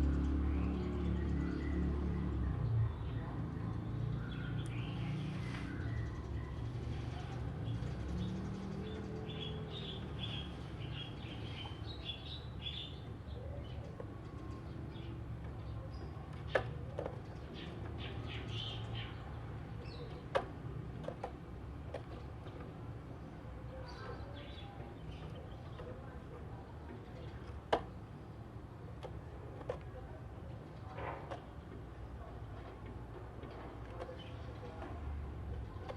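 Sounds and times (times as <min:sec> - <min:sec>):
bird chirping song: 0:00.1 - 0:20.4.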